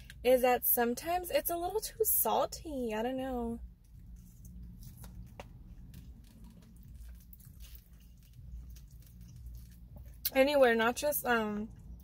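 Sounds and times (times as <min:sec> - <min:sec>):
low steady hum: 0:00.0 - 0:12.0
person chewing: 0:03.8 - 0:10.3.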